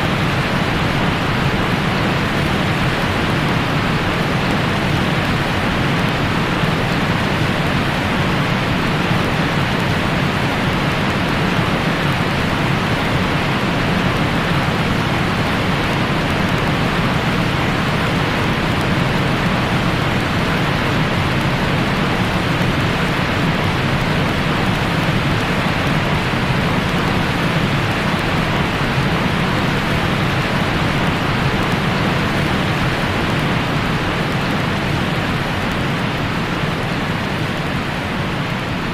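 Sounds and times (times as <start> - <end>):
steady white noise hiss: 0.0 - 38.9.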